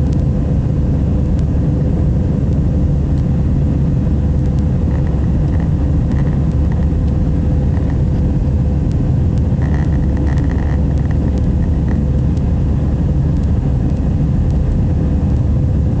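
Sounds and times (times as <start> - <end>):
engine and airflow rumble: 0.0 - 16.0
steady hum: 0.0 - 16.0.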